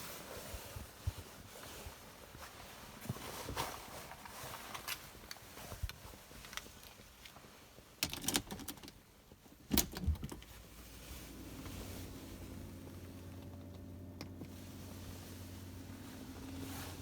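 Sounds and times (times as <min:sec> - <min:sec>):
steady low hum: 0:10.7 - 0:17.0.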